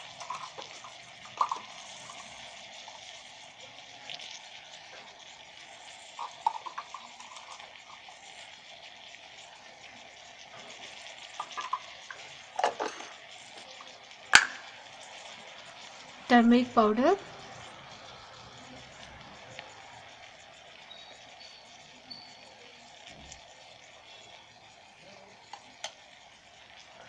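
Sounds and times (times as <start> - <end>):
utensil clicking against kettle: 0.0 - 16.3, 25.2 - 26.9
food sizzling in oil: 0.0 - 27.0.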